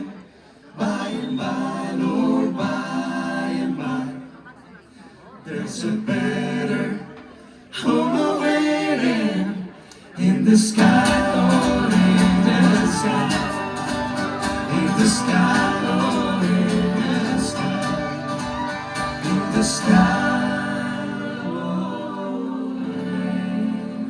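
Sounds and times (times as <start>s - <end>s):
bluegrass band playing: 10.5s - 21.9s
strummed guitar: 10.7s - 21.5s.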